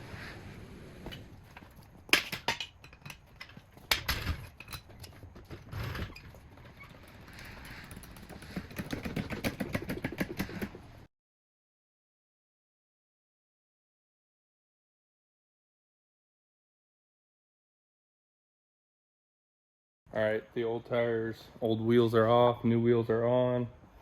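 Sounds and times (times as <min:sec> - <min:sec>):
fast clicking: 0:04.7 - 0:10.9.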